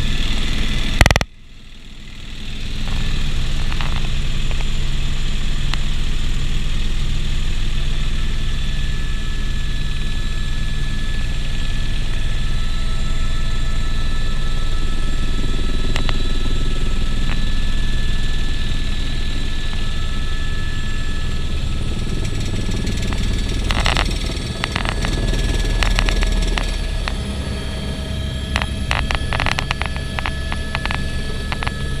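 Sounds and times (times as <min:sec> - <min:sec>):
helicopter running: 0:00.0 - 0:32.0
crackling clicks: 0:01.0 - 0:01.3, 0:15.9 - 0:16.3, 0:17.2 - 0:17.4, 0:22.2 - 0:27.2, 0:28.4 - 0:31.8.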